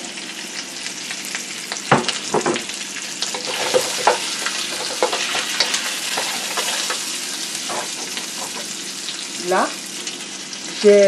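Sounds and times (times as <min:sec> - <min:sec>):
sausage and onion sizzling in oil: 0:00.0 - 0:11.0
spatula knocking and scraping pan: 0:03.4 - 0:08.8.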